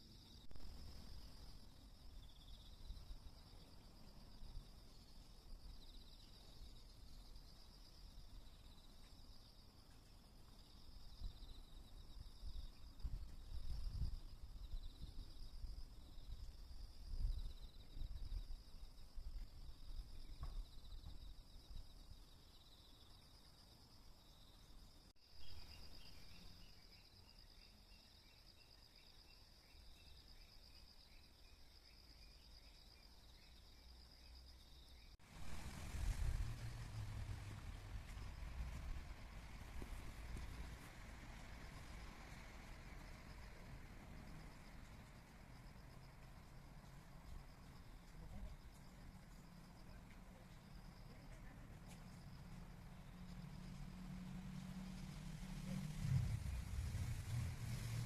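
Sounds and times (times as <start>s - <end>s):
insects chirring: 0.0s - 58.0s
low rumble: 35.2s - 44.0s, 52.2s - 58.0s.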